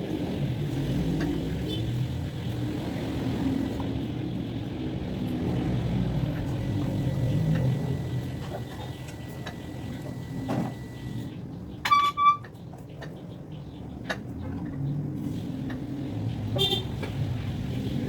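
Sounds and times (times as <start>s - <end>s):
vehicle engine rumble: 0.0s - 18.0s
car horn beeps: 11.8s - 12.5s, 16.6s - 17.0s.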